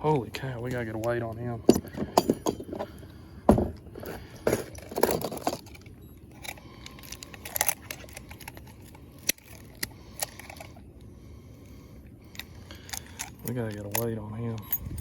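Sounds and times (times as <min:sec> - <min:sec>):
fishing gear rattles and clicks: 0:04.0 - 0:10.8, 0:12.3 - 0:15.0.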